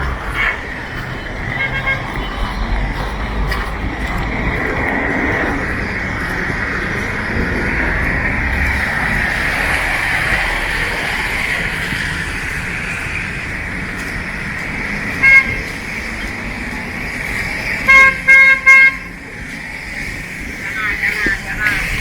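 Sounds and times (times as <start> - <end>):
street traffic hiss: 0.0 - 22.0
vehicle horn toots: 1.4 - 2.5, 15.2 - 15.7, 17.8 - 19.2.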